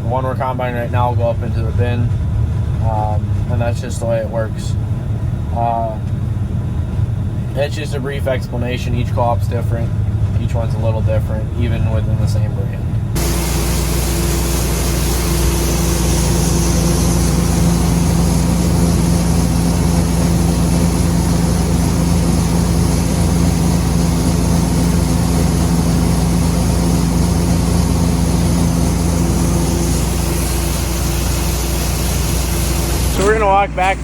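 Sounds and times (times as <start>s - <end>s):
combine harvester running: 12.8s - 34.0s.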